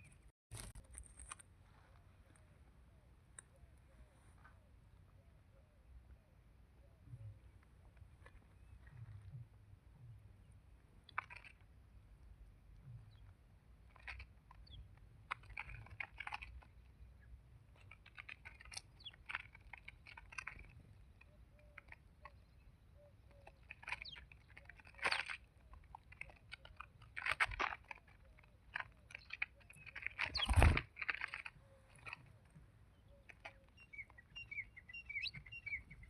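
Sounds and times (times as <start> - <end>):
crunchy clicks and rustling: 0.0 - 2.7, 7.2 - 9.6, 10.4 - 36.0
small bird chirping: 12.4 - 36.0.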